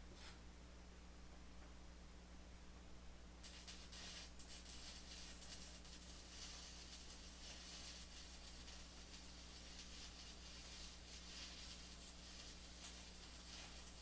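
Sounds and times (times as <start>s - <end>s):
faint low hum with hiss: 0.0s - 14.0s.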